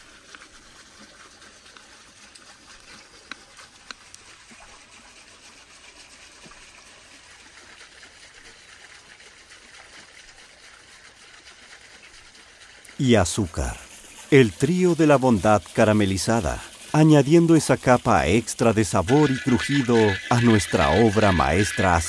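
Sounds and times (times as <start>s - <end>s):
trickling water: 0.0s - 22.0s.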